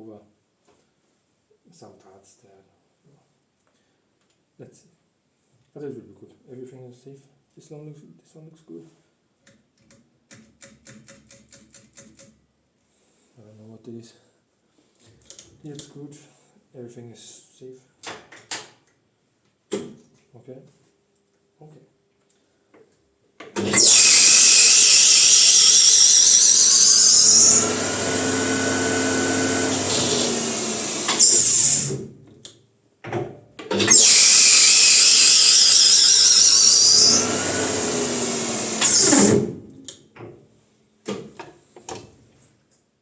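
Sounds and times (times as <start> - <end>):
lathe motor and belt running: 23.6 - 32.0, 33.9 - 39.3.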